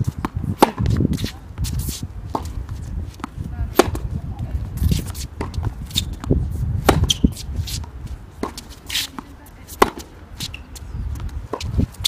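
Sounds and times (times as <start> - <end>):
tennis ball hit by rackets: 0.1 - 1.4, 3.2 - 4.1, 5.4 - 10.6.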